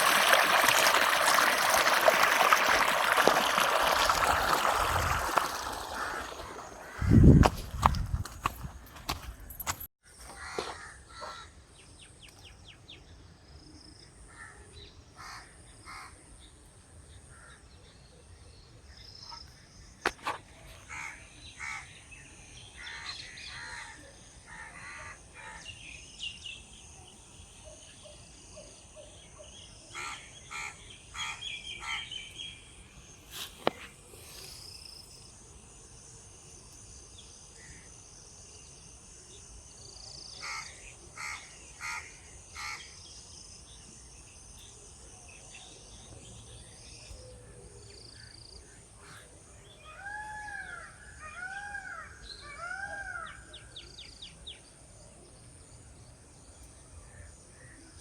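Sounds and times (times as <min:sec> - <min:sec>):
birds calling: 0:02.4 - 0:11.5.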